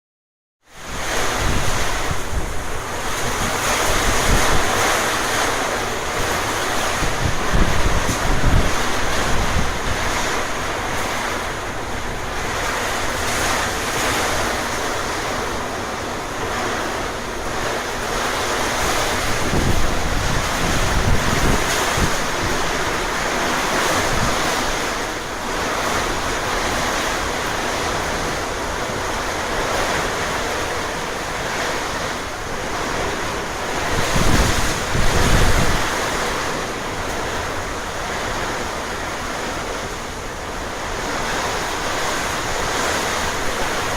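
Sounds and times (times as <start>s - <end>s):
storm wind rushing: 0.8s - 43.9s
wind buffeting microphone: 0.8s - 43.9s.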